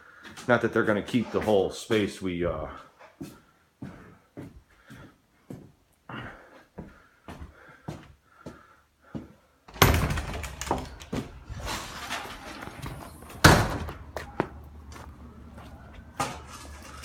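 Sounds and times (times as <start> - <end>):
rattling and clattering: 9.7 - 13.9.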